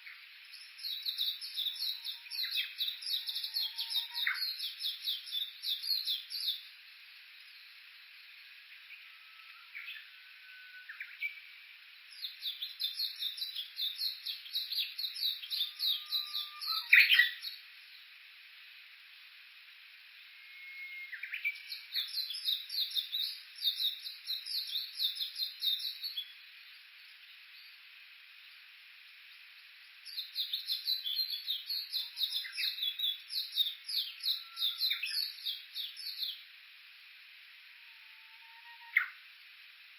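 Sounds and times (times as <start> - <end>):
low bird whistle: 15.6 - 17.4, 20.4 - 22.1, 37.9 - 39.2.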